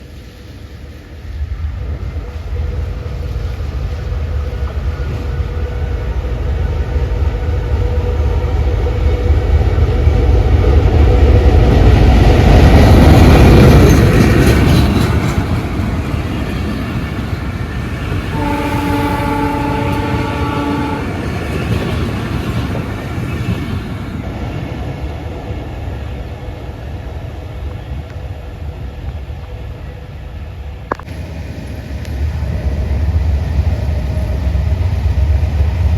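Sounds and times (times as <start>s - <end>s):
train passing: 0.0s - 35.9s
train horn blast: 18.3s - 21.4s.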